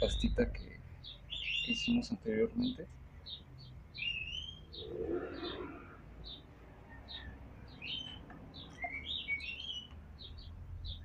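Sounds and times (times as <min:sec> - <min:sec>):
small birds chirping: 0:00.0 - 0:11.0
rising whistled bird notes: 0:04.0 - 0:06.4.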